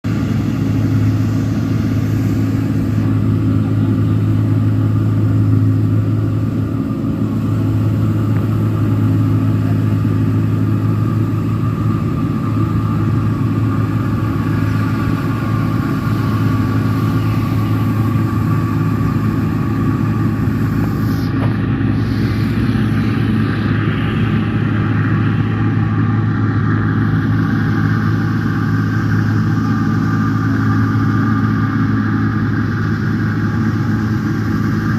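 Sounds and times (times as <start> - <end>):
combine harvester engine droning: 0.0 - 34.9.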